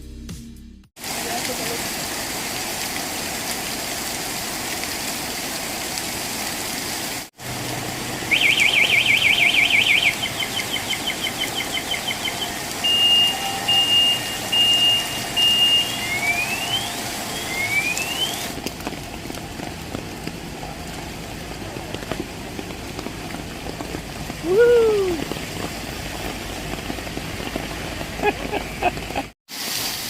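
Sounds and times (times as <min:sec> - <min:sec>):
rain hissing: 0:01.0 - 0:30.0
car alarm siren: 0:08.3 - 0:18.5.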